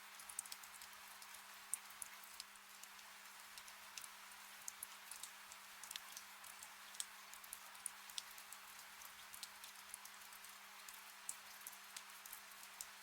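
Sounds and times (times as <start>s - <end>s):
gentle rain hiss: 0.0s - 13.0s.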